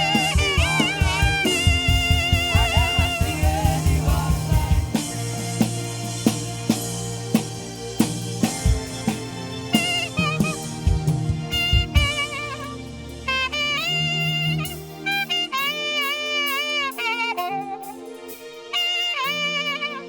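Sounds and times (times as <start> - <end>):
bass guitar: 0.0 - 13.2
drum kit: 0.0 - 19.4
saxophone melody: 0.0 - 20.0.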